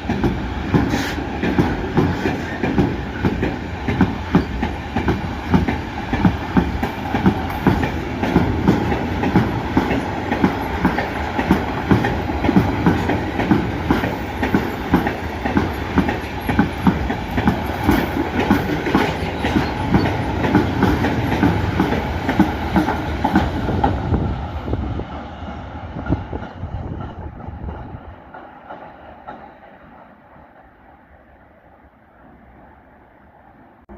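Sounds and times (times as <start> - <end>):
train wheels clattering over rail joints: 0.0 - 24.0.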